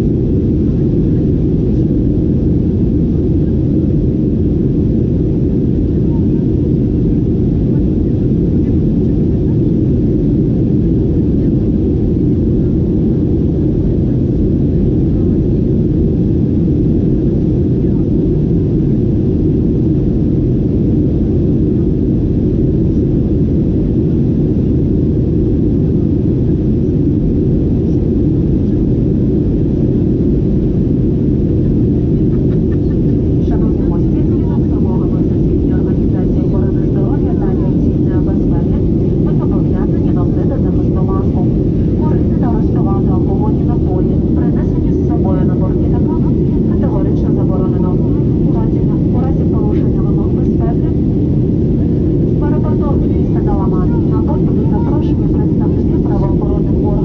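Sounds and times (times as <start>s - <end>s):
airplane cabin engine drone: 0.0s - 57.0s
airflow: 14.5s - 57.0s.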